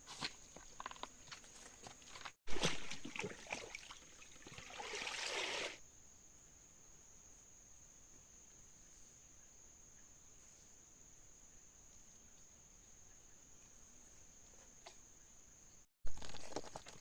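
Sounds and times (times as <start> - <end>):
water splashing and trickling: 2.0 - 5.8
water pouring: 2.5 - 5.8.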